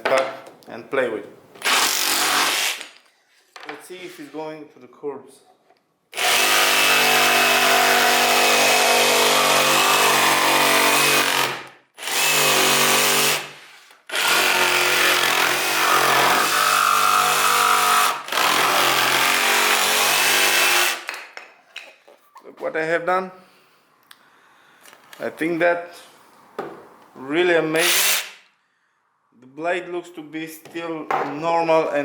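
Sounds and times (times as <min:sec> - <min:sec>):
jigsaw cutting wood: 0:01.6 - 0:02.9, 0:06.2 - 0:21.1, 0:27.8 - 0:28.3.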